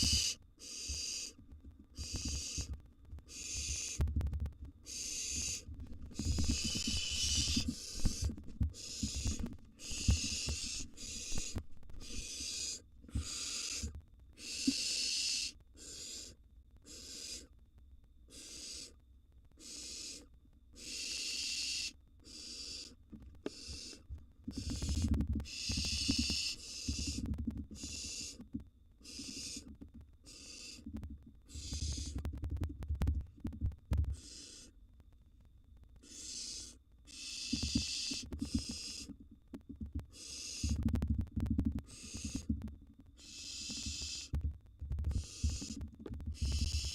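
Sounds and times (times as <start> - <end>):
owl nestlings hissing calls: 0.0 - 4.0, 4.8 - 17.5, 18.3 - 19.0, 19.6 - 32.3, 34.1 - 34.8, 36.0 - 39.2, 40.1 - 40.9, 41.8 - 42.6, 43.2 - 44.4, 45.1 - 46.9.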